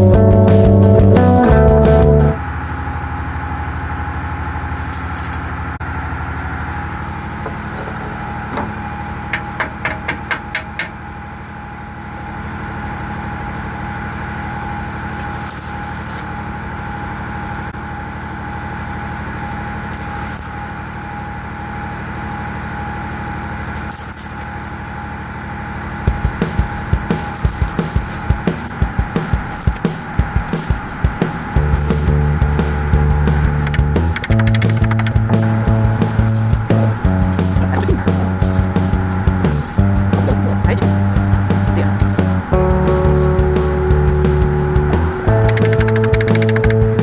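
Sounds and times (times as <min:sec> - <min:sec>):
machine humming: 0:00.0 - 0:47.0
sharp clicks: 0:33.5 - 0:35.3, 0:45.3 - 0:46.8.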